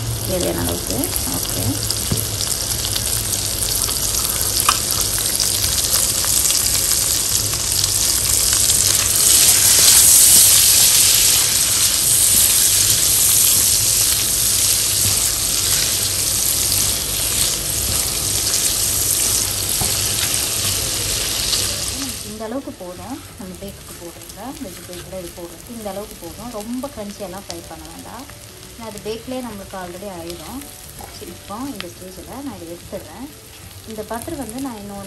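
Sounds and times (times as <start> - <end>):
potatoes sizzling in butter: 0.0 - 35.0
spatula turning food in pan: 0.5 - 22.2, 23.0 - 28.0.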